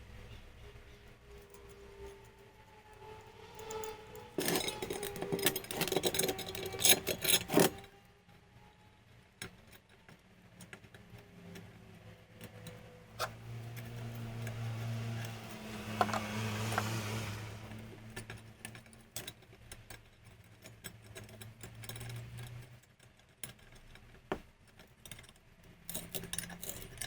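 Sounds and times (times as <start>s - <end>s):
metallic clattering and scraping: 0.2s - 7.9s, 10.7s - 22.8s
low motor hum: 11.3s - 18.1s.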